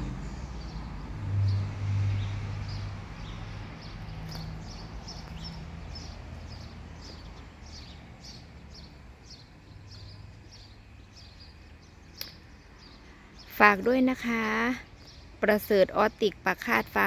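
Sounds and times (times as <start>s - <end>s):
small bird chirping: 0.3s - 17.0s.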